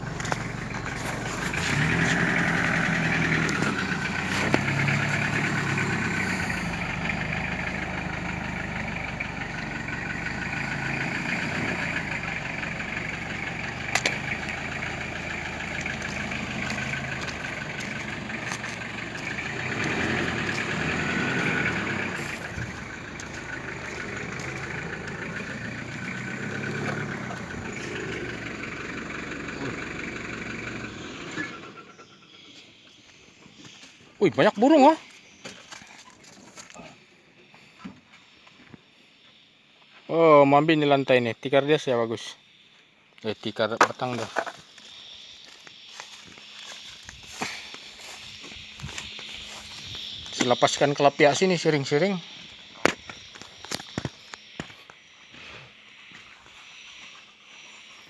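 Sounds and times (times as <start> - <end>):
engine idling: 0.0 - 32.5, 45.4 - 54.8.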